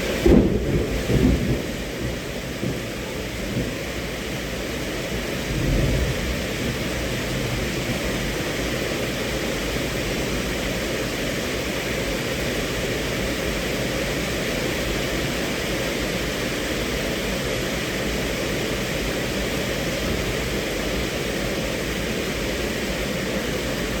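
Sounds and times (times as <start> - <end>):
thunder rumble: 0.0 - 4.0, 5.3 - 8.3
rain on car roof: 0.0 - 24.0.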